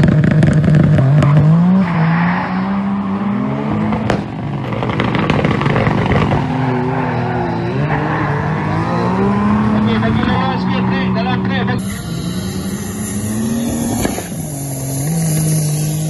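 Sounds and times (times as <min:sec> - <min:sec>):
car engine accelerating: 0:00.0 - 0:16.0
sharp crack: 0:03.9 - 0:06.6, 0:13.3 - 0:16.0.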